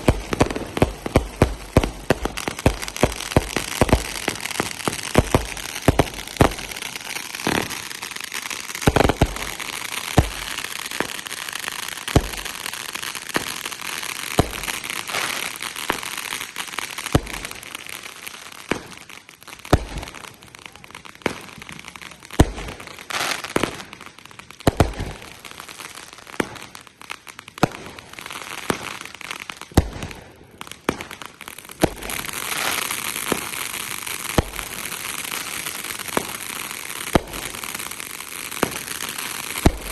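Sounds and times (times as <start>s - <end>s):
fireworks bangs: 0.0s - 19.0s, 31.8s - 39.9s
fireworks crackling: 0.0s - 39.9s.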